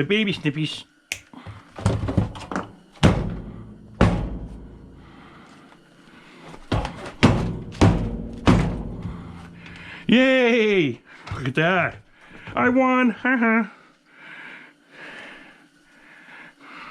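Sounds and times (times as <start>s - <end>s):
knocks on metal saw body: 3.0s - 5.0s, 6.7s - 9.9s.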